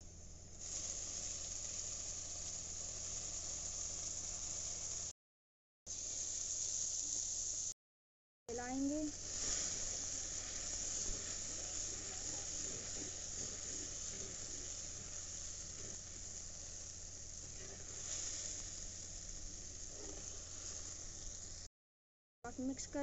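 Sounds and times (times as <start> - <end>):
masala sizzling in hot oil: 0.0 - 5.2, 5.9 - 7.8, 8.5 - 21.7, 22.5 - 23.0
metal spatula stirring: 9.2 - 16.2.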